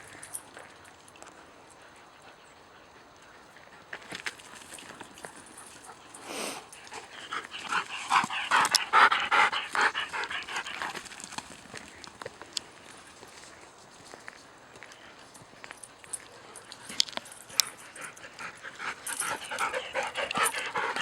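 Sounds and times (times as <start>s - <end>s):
dog panting: 1.8s - 12.2s, 15.9s - 21.0s.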